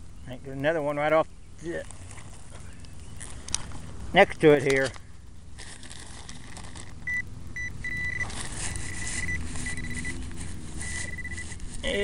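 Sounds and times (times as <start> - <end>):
rustling in grass: 1.7 - 4.2, 4.8 - 12.0
metal detector beeps and tones: 7.1 - 10.2, 10.8 - 12.0.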